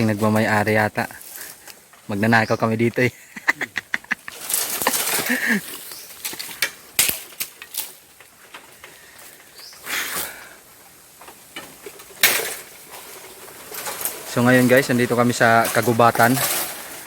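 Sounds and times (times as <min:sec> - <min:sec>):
bamboo leaves rustling: 0:00.0 - 0:17.0
sharp knocks and cracks: 0:06.2 - 0:08.8, 0:11.2 - 0:16.8.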